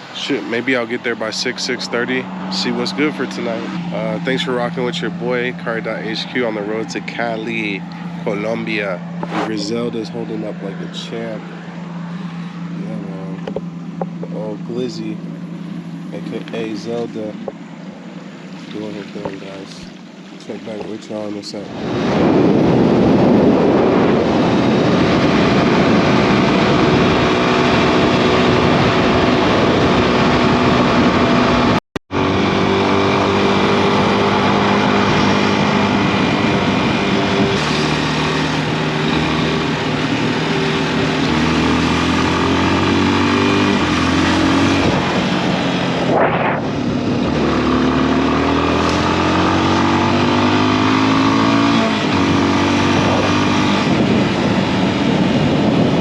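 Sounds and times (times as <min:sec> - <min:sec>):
rushing noise: 0:00.0 - 0:13.4, 0:32.4 - 0:56.0
motorcycle engine revving: 0:00.0 - 0:56.0.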